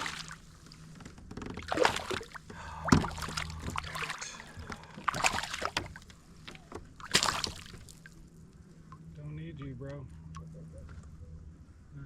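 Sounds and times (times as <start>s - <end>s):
small splashes: 0.0s - 0.7s, 1.6s - 8.2s
fish knocking and rattling: 1.0s - 8.0s.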